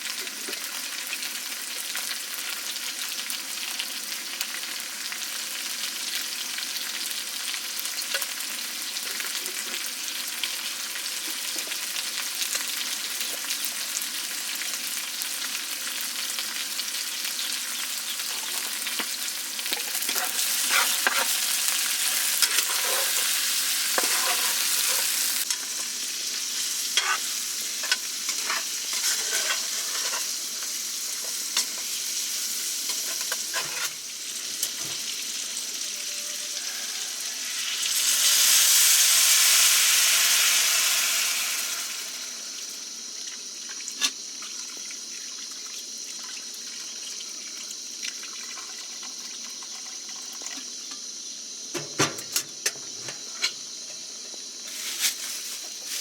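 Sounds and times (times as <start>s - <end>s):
food sizzling in a pan: 0.0s - 56.0s
scraping while stirring in pan: 19.8s - 25.6s, 26.9s - 32.0s, 32.8s - 34.0s.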